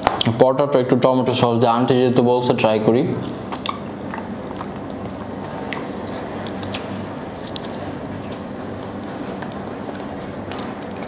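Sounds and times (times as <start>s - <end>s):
steady low hum: 0.0s - 11.0s
biting and chewing food: 3.5s - 11.0s.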